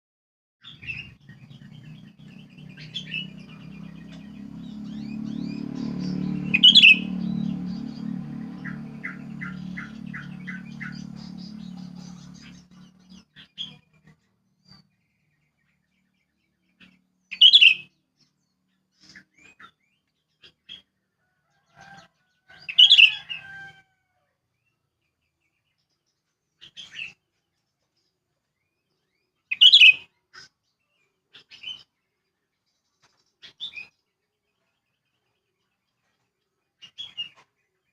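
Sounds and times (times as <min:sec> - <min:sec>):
low steady rumble: 0:01.1 - 0:13.8.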